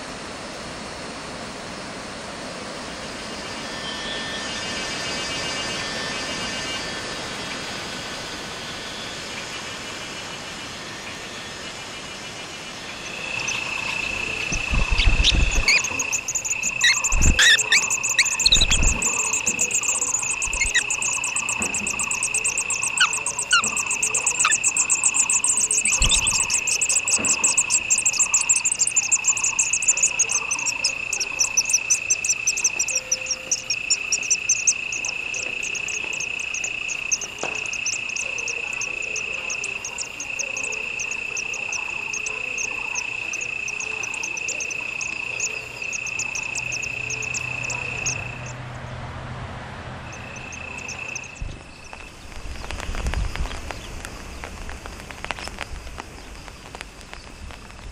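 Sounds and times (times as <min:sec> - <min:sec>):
low repeating insect call: 0:00.0 - 0:57.9
insects trilling: 0:03.2 - 0:48.8, 0:49.9 - 0:57.9
bird chirps: 0:12.8 - 0:48.6, 0:50.0 - 0:53.9
pulsing insect buzz: 0:12.9 - 0:48.6.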